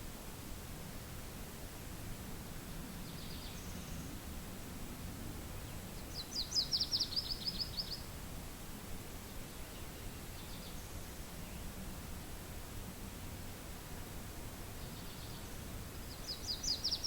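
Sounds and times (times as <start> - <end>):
low wind noise: 0.0 - 17.0
songbird trilling: 6.0 - 8.0, 16.1 - 17.0.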